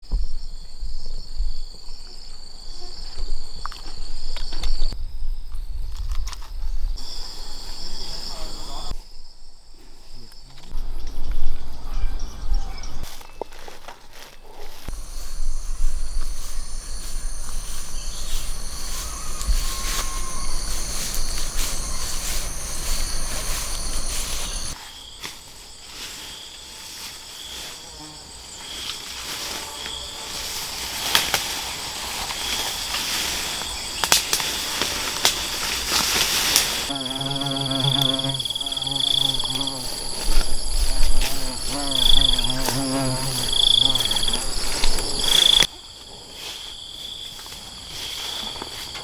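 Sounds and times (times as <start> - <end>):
insects chirring: 0.1 - 13.4, 14.7 - 49.0.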